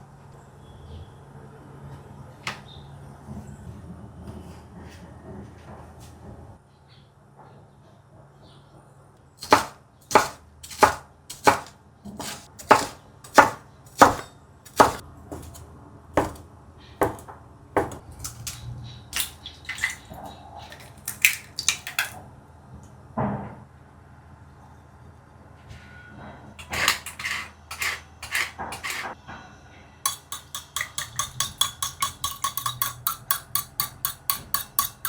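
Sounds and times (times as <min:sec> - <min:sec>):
knife chopping on wooden board: 0:09.4 - 0:15.6, 0:16.2 - 0:16.4, 0:17.0 - 0:18.0, 0:26.6 - 0:29.1, 0:30.1 - 0:35.0.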